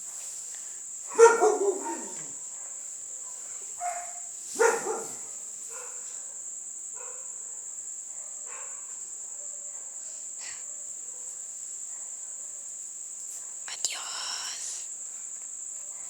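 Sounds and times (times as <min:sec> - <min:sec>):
crickets chirring: 0:00.0 - 0:16.0
faint dog barks: 0:01.1 - 0:13.7, 0:15.8 - 0:16.0.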